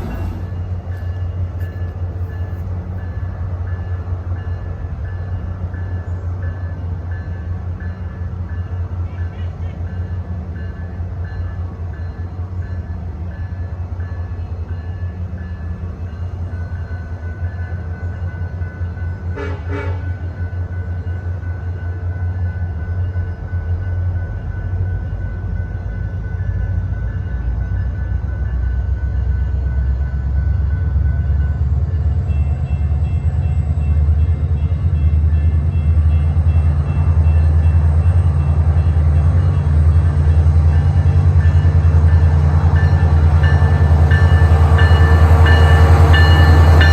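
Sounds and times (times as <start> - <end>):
train rumbling: 0.0 - 46.9
train horn toot: 19.3 - 20.3.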